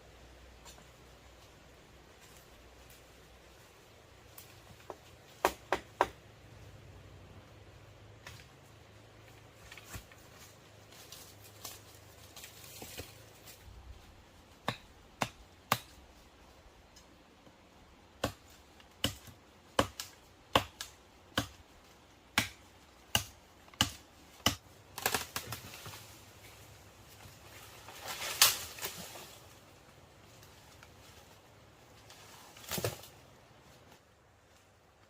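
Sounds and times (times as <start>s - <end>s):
scraping rustle: 9.3s - 14.2s, 25.2s - 34.7s.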